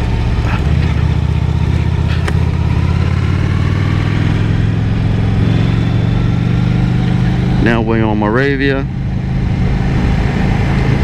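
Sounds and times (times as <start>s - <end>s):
motorcycle engine cruising: 0.0s - 11.0s
wind noise on microphone: 8.9s - 11.0s.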